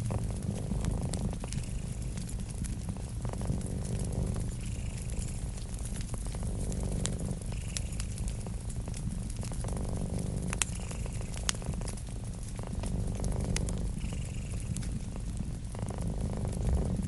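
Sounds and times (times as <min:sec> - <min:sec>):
cat purring: 0:00.0 - 0:17.0
wood fire crackling and popping: 0:00.0 - 0:17.0.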